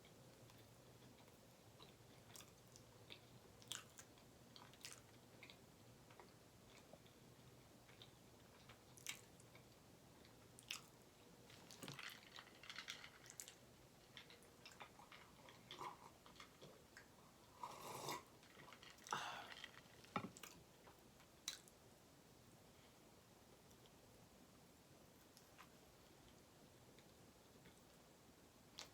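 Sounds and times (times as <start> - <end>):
person chewing food: 0.4 - 10.9, 11.5 - 21.7.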